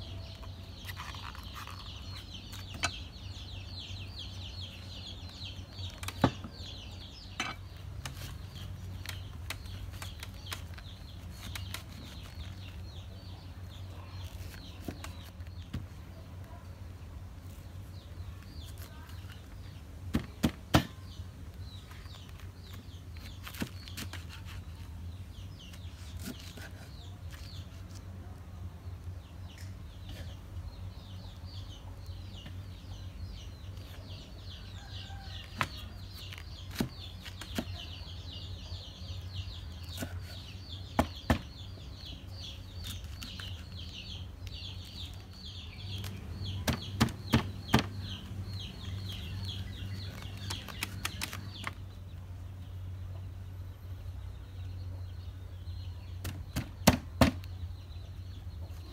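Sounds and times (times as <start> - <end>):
birds chirping: 0.0 - 58.9
knife chopping on wooden board: 46.6 - 48.0.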